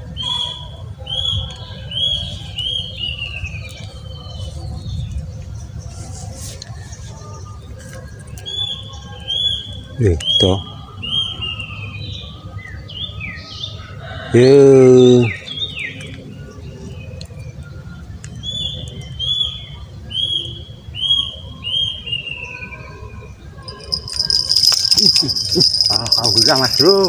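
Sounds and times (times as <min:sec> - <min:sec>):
high rattling hiss: 0:23.7 - 0:27.0.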